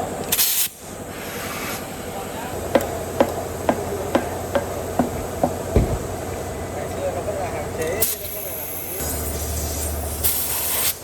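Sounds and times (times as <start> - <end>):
hammer striking metal: 2.8 - 5.6.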